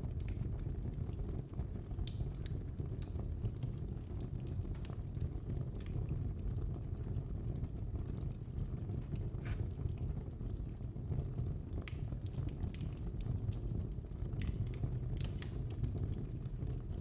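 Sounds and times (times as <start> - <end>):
fire flames rumbling: 0.0 - 17.0
wood fire crackling and popping: 0.0 - 17.0.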